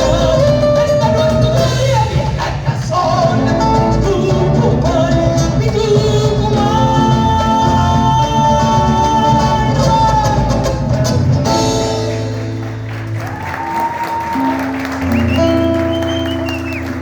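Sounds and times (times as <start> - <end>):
woman singing: 0.0 - 10.8
live band music: 0.0 - 17.0
applause: 10.9 - 17.0.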